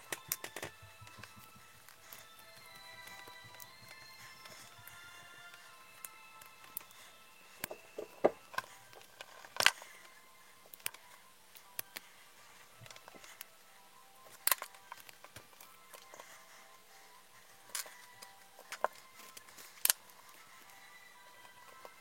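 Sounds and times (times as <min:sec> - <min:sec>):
small plastic parts clicking: 0:00.0 - 0:07.0, 0:07.6 - 0:12.1, 0:14.2 - 0:16.4, 0:17.6 - 0:20.8
background music: 0:00.0 - 0:22.0.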